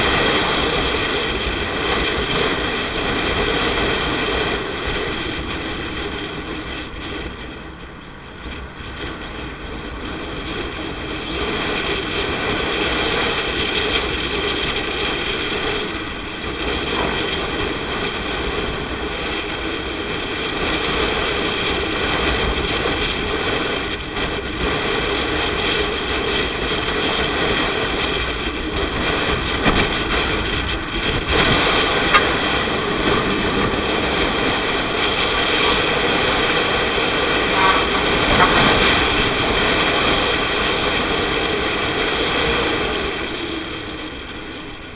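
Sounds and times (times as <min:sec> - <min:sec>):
road noise: 0:00.0 - 0:44.9
wind noise: 0:00.0 - 0:44.9
motorcycle engine: 0:31.9 - 0:41.2.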